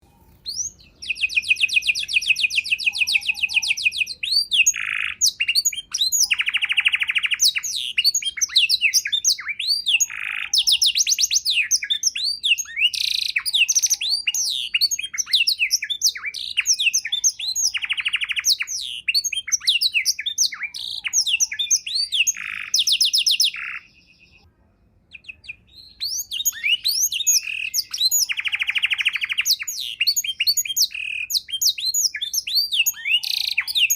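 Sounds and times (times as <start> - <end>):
canary singing: 0.0 - 24.5, 25.1 - 33.9.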